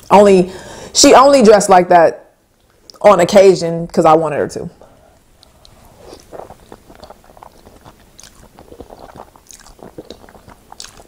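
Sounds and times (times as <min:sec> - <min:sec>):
chewing pasta: 0:05.4 - 0:11.0.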